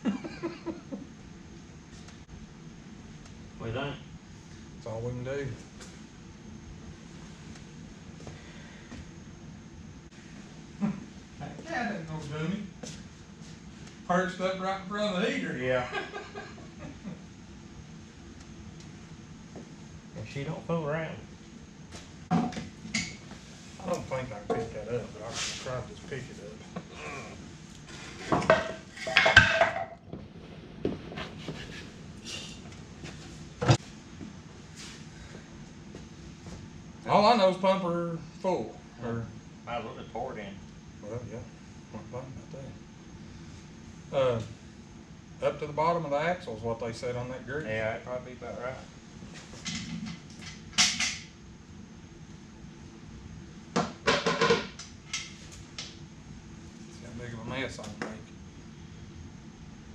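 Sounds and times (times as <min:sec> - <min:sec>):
scraping and clattering at a bench: 0:27.9 - 0:30.0, 0:30.9 - 0:31.9, 0:49.4 - 0:51.3.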